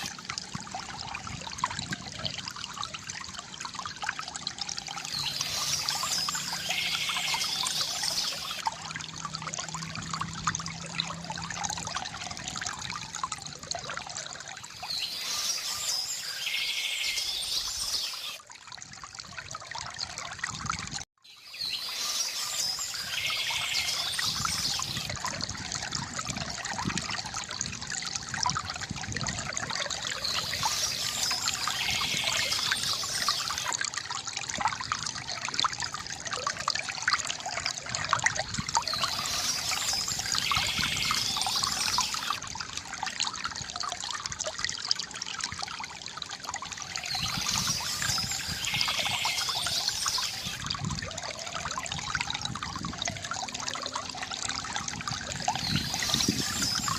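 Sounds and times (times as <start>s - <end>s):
water trickling from fountain: 0.0s - 56.9s
high bird chirping: 5.1s - 8.6s, 21.3s - 25.1s, 30.2s - 33.7s, 38.8s - 42.4s, 47.1s - 50.6s.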